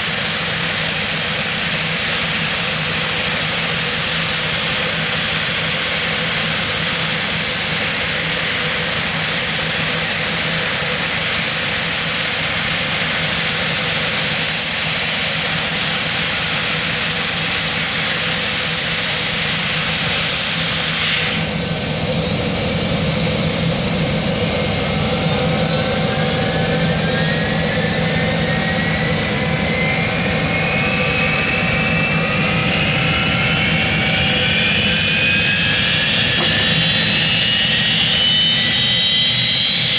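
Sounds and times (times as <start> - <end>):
jet engine whine spooling up: 0.0 - 39.9
jet engines running: 0.0 - 39.9.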